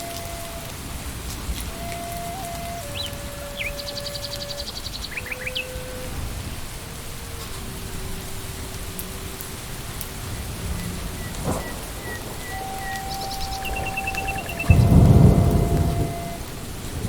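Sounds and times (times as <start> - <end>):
rain on leaves and ground: 0.0 - 17.0
faint high tones: 10.7 - 16.5.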